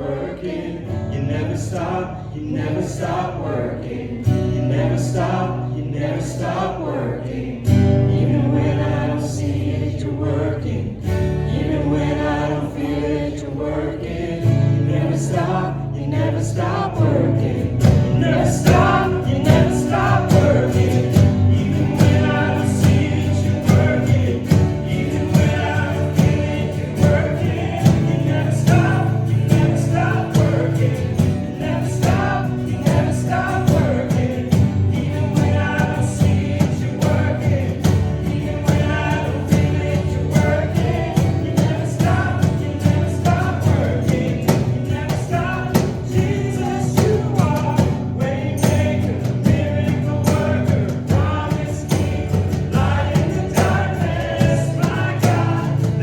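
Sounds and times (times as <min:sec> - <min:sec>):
bass notes: 0:00.0 - 0:56.0
choir singing gospel: 0:00.0 - 0:56.0
drum beat: 0:17.8 - 0:56.0.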